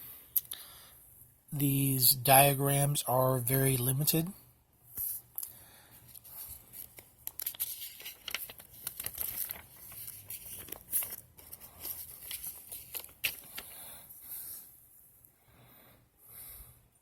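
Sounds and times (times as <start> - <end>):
pages turning: 5.0 - 13.9
paper rustling and crinkling: 5.0 - 14.1.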